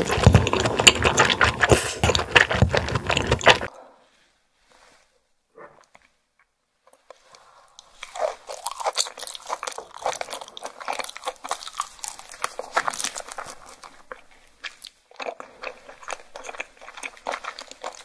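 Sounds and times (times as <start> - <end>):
clicking chewing sounds: 0.0 - 3.7, 7.8 - 18.0.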